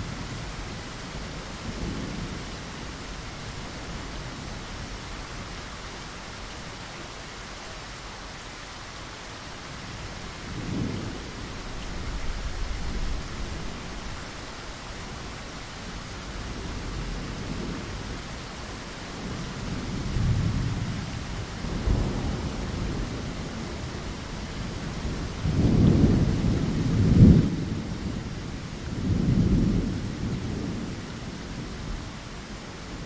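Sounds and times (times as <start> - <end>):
heavy rain hissing: 0.0 - 33.0
rolling thunder: 19.1 - 32.1.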